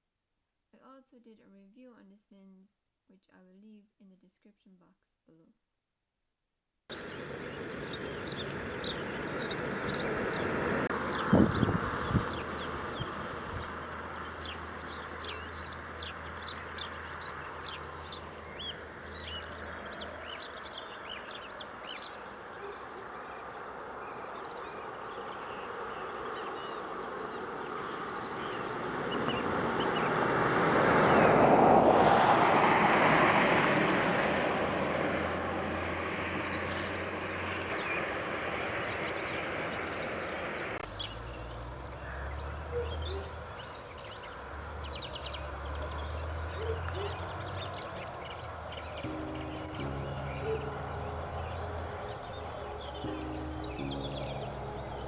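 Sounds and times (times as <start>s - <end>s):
birds chirping and singing: 6.9s - 30.0s, 36.6s - 55.0s
vehicle passing by: 6.9s - 55.0s.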